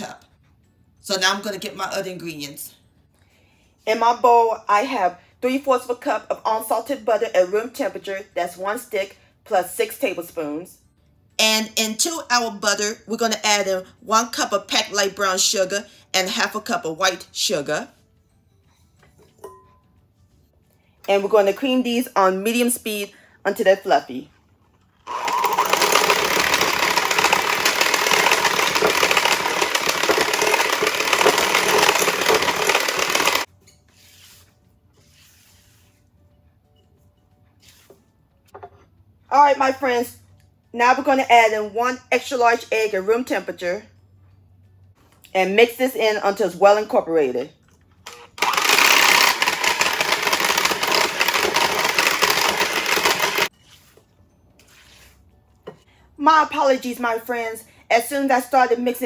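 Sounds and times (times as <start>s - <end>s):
electric hand mixer running: 25.1s - 33.5s, 48.4s - 53.5s.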